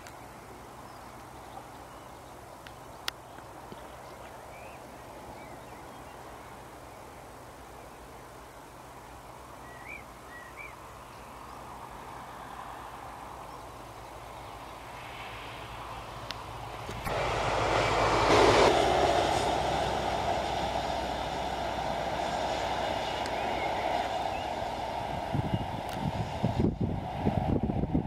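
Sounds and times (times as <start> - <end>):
approaching train rushing: 11.7 - 28.0.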